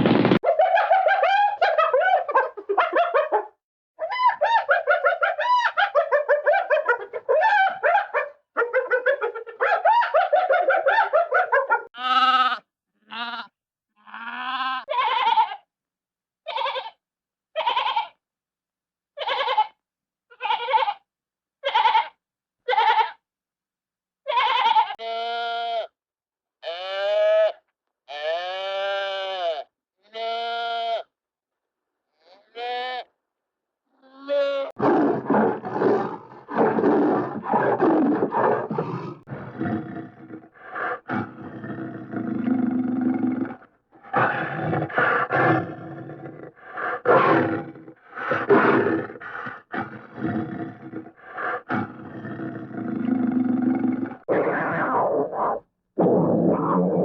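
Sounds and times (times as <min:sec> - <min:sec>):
pitched animal-like cries: 0:04.0 - 0:15.6, 0:16.5 - 0:17.0, 0:17.6 - 0:18.2, 0:19.2 - 0:21.0, 0:21.6 - 0:23.2, 0:24.3 - 0:25.9, 0:34.0 - 0:51.9.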